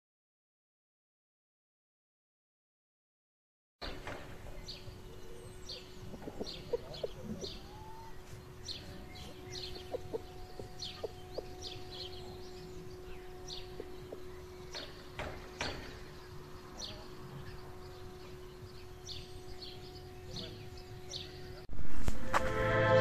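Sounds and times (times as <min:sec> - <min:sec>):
birds chirping: 0:03.8 - 0:21.7
steady low hum: 0:04.0 - 0:23.0.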